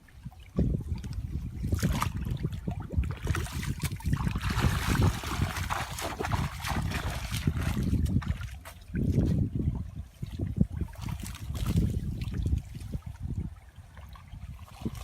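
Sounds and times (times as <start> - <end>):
water splashing and trickling: 0.0 - 15.0.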